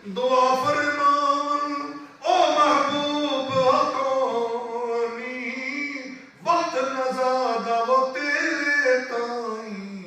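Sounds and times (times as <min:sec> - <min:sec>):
man singing: 0:00.0 - 0:10.0.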